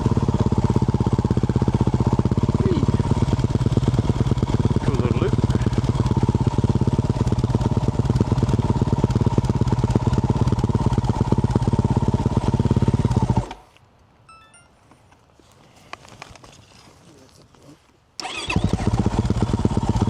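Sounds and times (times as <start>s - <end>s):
dirt bike engine running: 0.0s - 13.6s, 18.2s - 20.0s.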